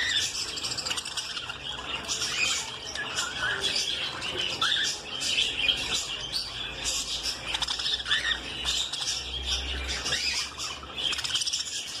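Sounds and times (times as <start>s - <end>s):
budgerigars chattering: 0.0s - 12.0s.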